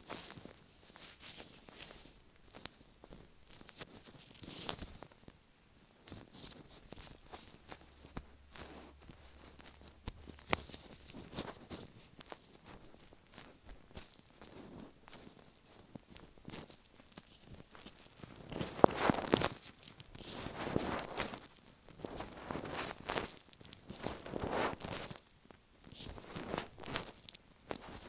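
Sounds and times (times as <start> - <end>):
sticky crackly rubbing on microphone: 6.0 - 25.3, 25.9 - 28.0.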